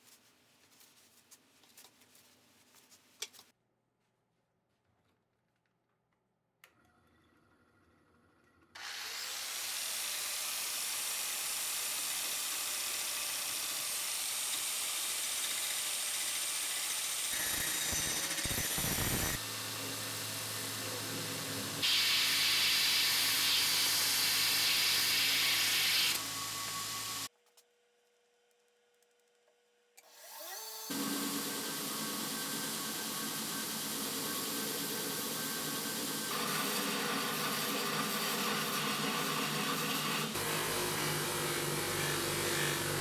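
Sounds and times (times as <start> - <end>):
power tool running: 8.8 - 27.3, 30.0 - 43.0.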